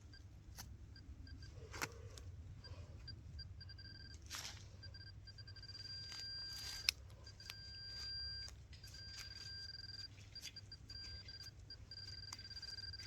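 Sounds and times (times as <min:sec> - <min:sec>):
metal detector beeping: 0:02.6 - 0:13.0
digging in wet soil: 0:06.0 - 0:13.0.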